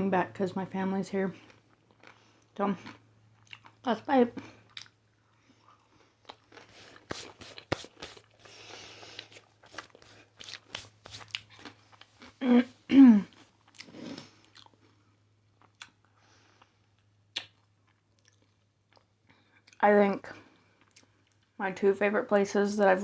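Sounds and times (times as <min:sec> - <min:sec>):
crunching and chewing: 0:01.4 - 0:12.4, 0:13.3 - 0:19.8.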